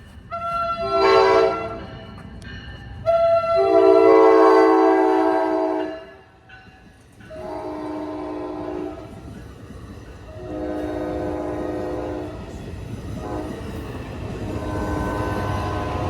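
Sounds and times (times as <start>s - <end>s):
train air horn blasts: 0.3s - 1.8s, 3.0s - 6.3s, 7.3s - 9.1s, 10.3s - 12.4s, 13.2s - 13.7s, 14.4s - 16.0s.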